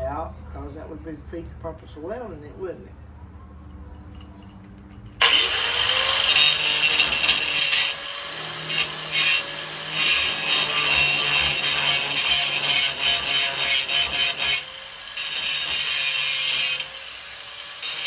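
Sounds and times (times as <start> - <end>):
angle grinder grinding metal: 4.0 - 18.0.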